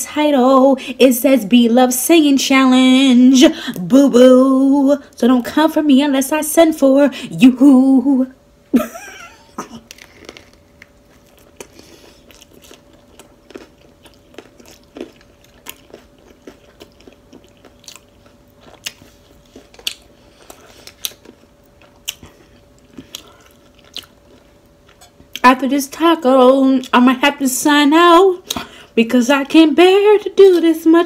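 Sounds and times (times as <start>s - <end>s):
chewing with wet mouth clicks: 9.8s - 25.5s.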